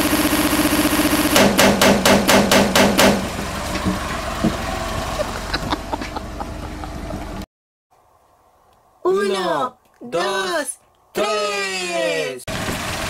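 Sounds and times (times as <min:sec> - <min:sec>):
car engine running: 0:00.0 - 0:07.4, 0:12.5 - 0:13.0
sharp knocks: 0:01.4 - 0:04.6.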